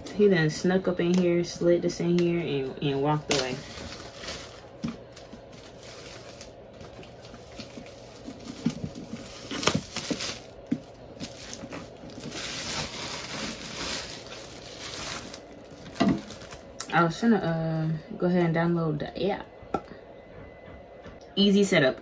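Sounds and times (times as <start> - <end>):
packaging crinkling: 2.0 - 16.9.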